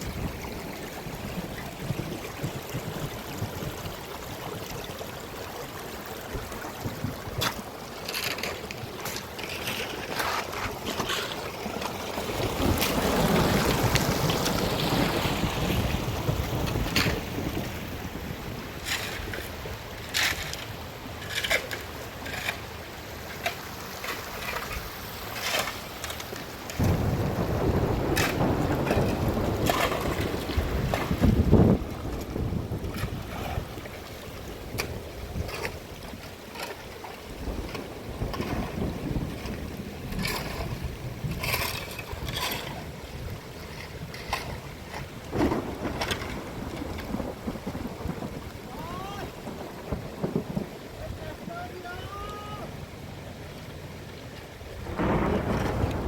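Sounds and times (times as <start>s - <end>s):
wind buffeting microphone: 0.0s - 7.7s, 11.6s - 20.1s, 26.5s - 36.4s, 37.3s - 51.6s, 54.7s - 56.0s
rain and water: 0.0s - 56.0s.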